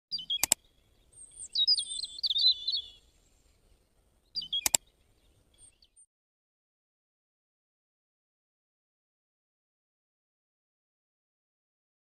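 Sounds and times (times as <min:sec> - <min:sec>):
bird chirps and tweets: 0:00.1 - 0:06.1
sharp clicks: 0:00.3 - 0:00.6, 0:04.5 - 0:04.9.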